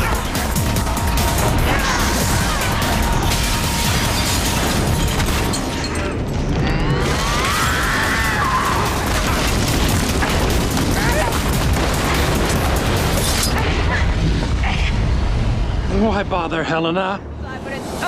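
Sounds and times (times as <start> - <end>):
booms and impacts: 0.0 - 14.6
action soundtrack music: 0.0 - 18.0.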